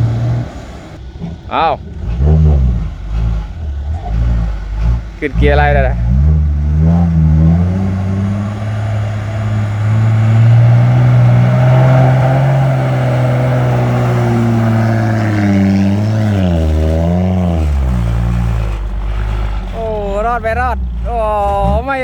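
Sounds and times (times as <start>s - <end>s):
diesel truck engine under load: 0.0s - 22.0s.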